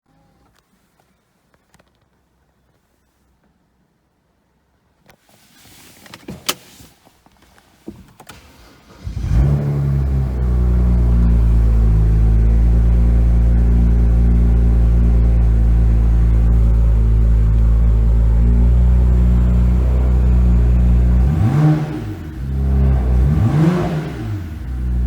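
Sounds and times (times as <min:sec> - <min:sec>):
car engine starting and idling: 0:05.7 - 0:25.0.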